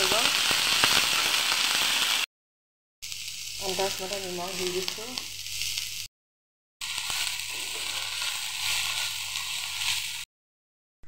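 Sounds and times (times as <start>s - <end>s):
vegetables sizzling in oil: 0.0s - 2.3s, 3.0s - 6.1s, 6.8s - 10.3s.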